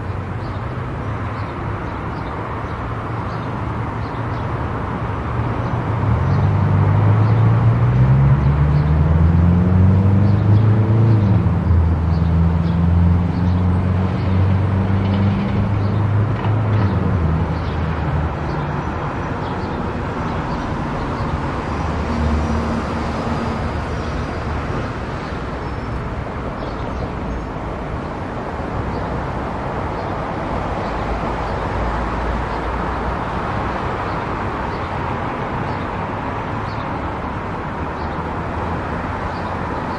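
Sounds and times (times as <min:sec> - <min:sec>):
road and tyre noise: 0:00.0 - 0:39.9
car engine accelerating: 0:06.5 - 0:14.0.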